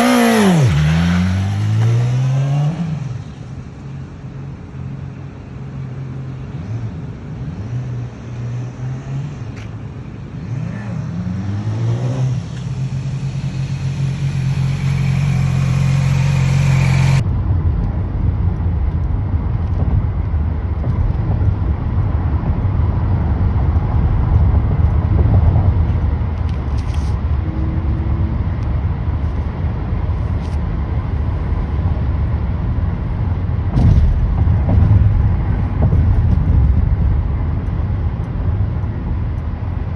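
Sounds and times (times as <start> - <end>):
motorcycle engine accelerating: 0.0 - 3.6, 10.4 - 17.2
wind rumble on microphone: 16.9 - 39.9.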